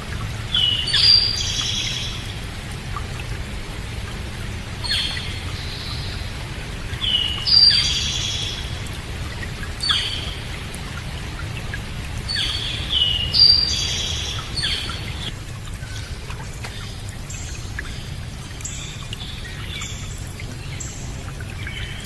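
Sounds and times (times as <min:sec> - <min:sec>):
rain hissing: 0:00.0 - 0:19.2
songbirds calling: 0:00.0 - 0:22.0.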